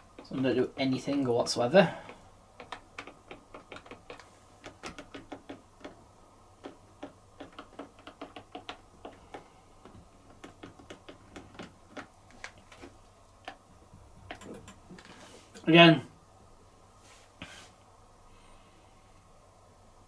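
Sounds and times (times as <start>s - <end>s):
rapid irregular sharp clicking: 0.0s - 15.2s.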